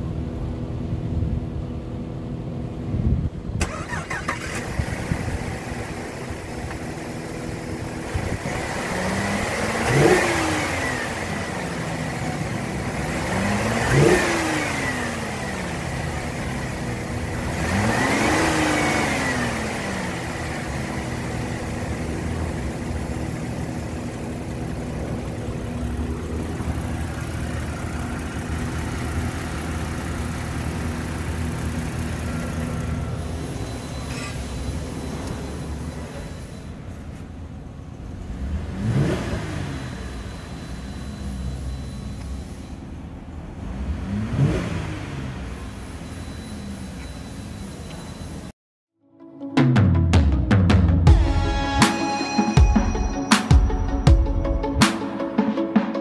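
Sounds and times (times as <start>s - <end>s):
car engine idling: 0.0s - 48.5s
car engine revving: 3.6s - 48.3s.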